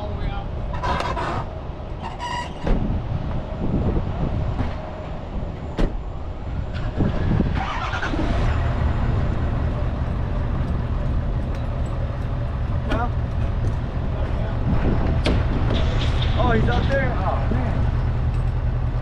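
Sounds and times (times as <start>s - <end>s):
pickup truck engine running: 6.0s - 15.7s.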